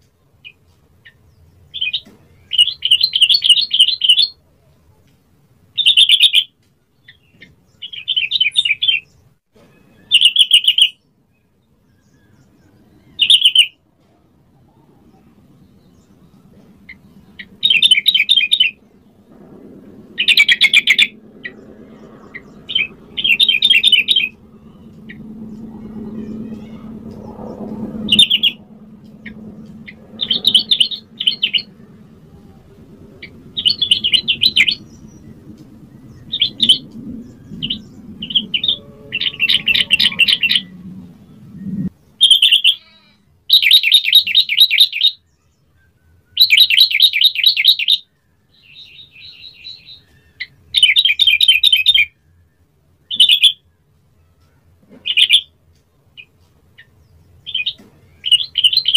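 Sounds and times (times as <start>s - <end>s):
faint low hum: 11.0s - 43.6s
bird singing bubbling phrases: 12.2s - 13.8s, 14.6s - 19.3s, 19.9s - 42.8s, 57.4s - 58.9s.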